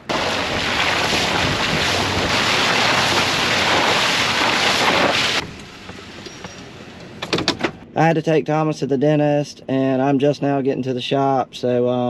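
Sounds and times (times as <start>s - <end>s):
loud steady rushing noise: 0.0s - 8.0s.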